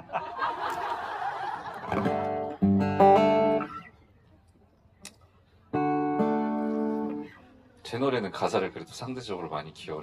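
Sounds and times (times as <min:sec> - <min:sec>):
acoustic guitar chords strummed: 0:01.9 - 0:03.8.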